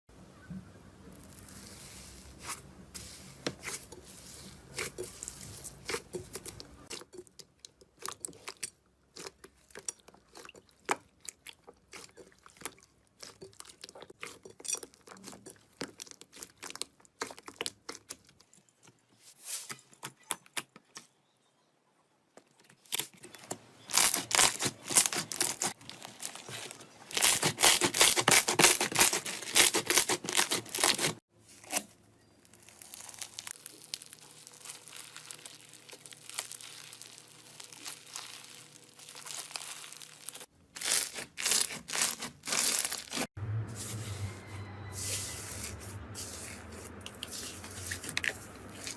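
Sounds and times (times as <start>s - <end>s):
slime squishing: 1.2s - 19.6s, 23.9s - 31.9s, 32.6s - 43.3s, 45.4s - 48.9s
slime crackling and popping: 32.5s - 43.2s.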